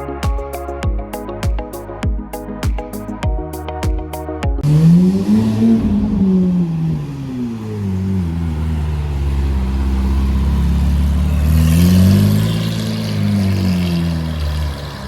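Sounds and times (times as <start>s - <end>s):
sports car engine revving: 4.6s - 15.0s.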